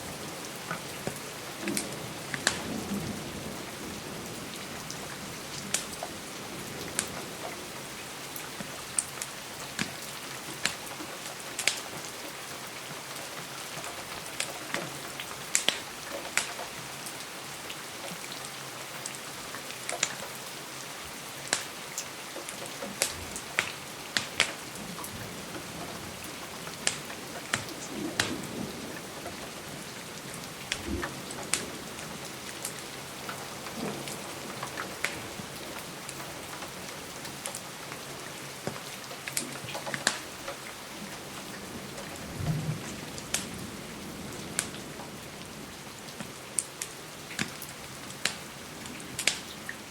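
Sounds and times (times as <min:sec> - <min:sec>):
rain on a window: 0:00.0 - 0:49.9
wood fire crackling and popping: 0:01.8 - 0:02.7, 0:05.7 - 0:06.0, 0:11.5 - 0:11.9, 0:15.5 - 0:16.6, 0:21.5 - 0:21.8, 0:22.4 - 0:25.7, 0:26.7 - 0:28.6, 0:32.4 - 0:36.2, 0:38.6 - 0:40.6, 0:43.3 - 0:43.6, 0:46.2 - 0:49.6.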